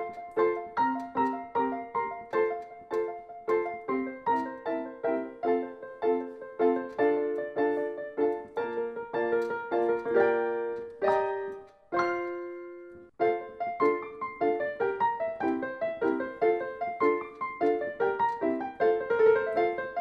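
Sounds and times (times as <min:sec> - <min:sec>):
solo piano music: 0:00.0 - 0:20.0.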